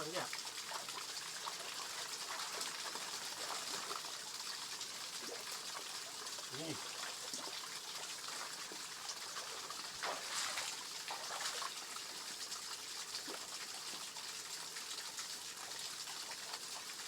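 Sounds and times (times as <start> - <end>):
water trickling over waterfall: 0.0 - 17.0
water splash: 10.0 - 11.6.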